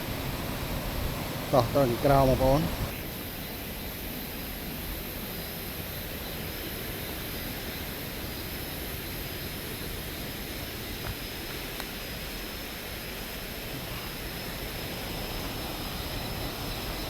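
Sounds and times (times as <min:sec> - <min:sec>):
waterfall rushing: 0:00.0 - 0:03.0.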